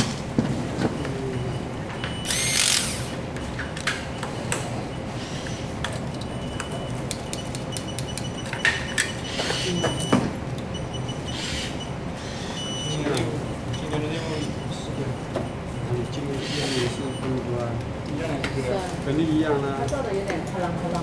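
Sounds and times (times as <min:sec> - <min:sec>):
steady machine hum: 0:00.0 - 0:21.0
small power tool whirring: 0:02.2 - 0:03.2, 0:11.3 - 0:12.6, 0:16.4 - 0:17.0.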